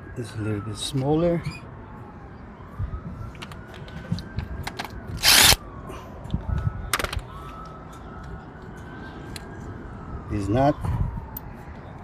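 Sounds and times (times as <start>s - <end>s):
impact wrench bursts: 5.2s - 5.6s.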